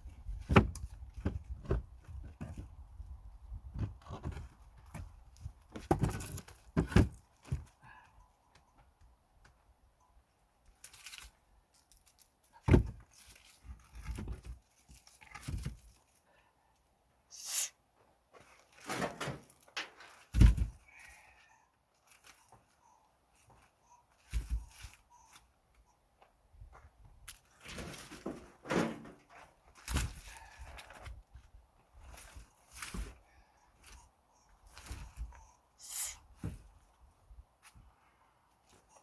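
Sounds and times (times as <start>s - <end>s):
firewood logs thudding: 0.2s - 2.8s, 3.6s - 7.7s, 12.6s - 13.1s, 20.3s - 20.8s
scraping rustles of logs: 10.6s - 16.2s, 18.3s - 25.8s, 26.6s - 37.9s.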